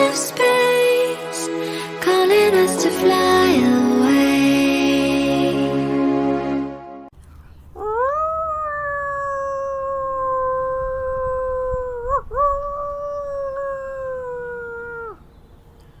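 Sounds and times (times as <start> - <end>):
animal howling: 7.8 - 15.4.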